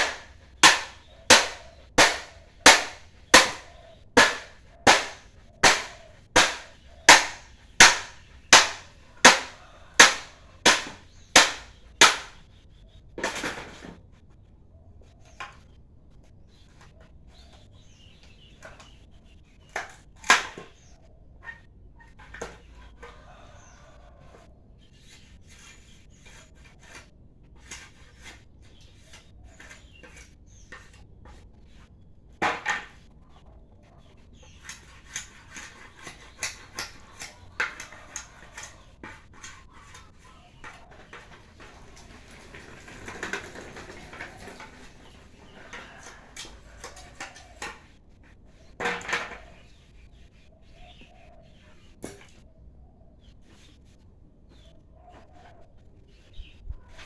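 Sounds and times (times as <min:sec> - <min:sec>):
wood knocking and clattering: 0:00.0 - 0:12.4.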